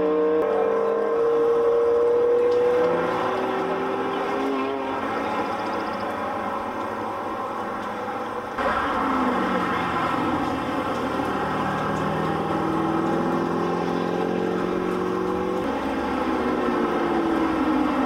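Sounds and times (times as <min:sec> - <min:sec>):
race car engines at speed: 0:00.0 - 0:18.0.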